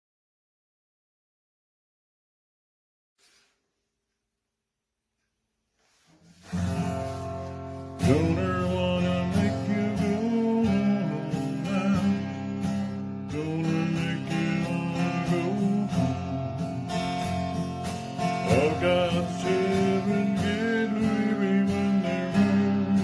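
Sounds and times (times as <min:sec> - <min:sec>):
strummed acoustic guitar: 0:05.9 - 0:23.0
person singing: 0:08.0 - 0:16.9, 0:18.3 - 0:23.0.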